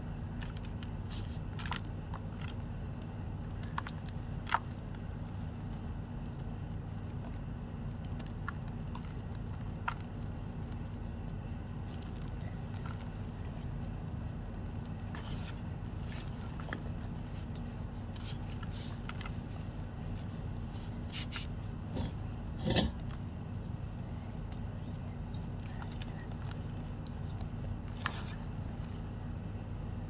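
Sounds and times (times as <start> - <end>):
chalk crunching: 0.0 - 22.4.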